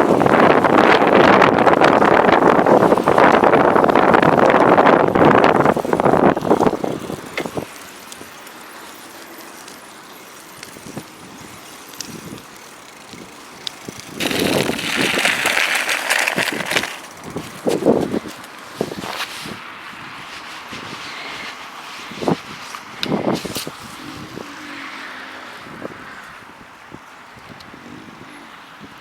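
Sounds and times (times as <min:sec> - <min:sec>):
wind buffeting microphone: 0:00.0 - 0:08.5, 0:10.6 - 0:29.0.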